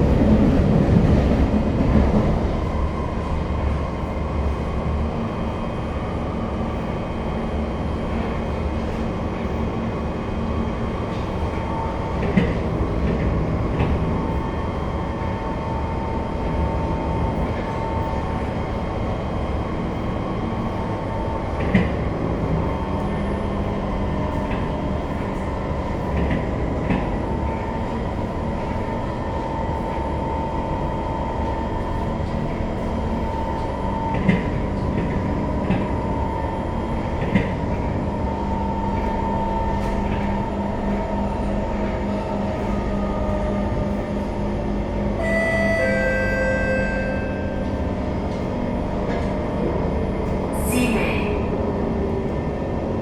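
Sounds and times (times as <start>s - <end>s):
metro train rumbling on rails: 0.0s - 53.0s.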